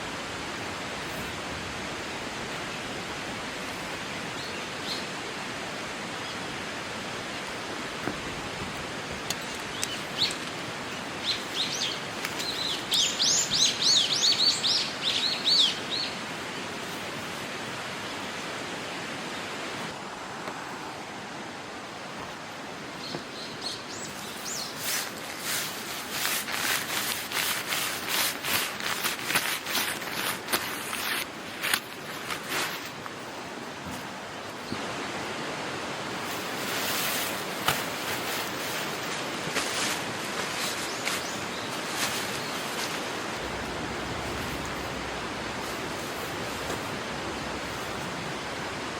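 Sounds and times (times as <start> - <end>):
songbird chirping: 9.3 - 16.2, 39.8 - 48.9
outdoor rushing noise: 42.8 - 48.9.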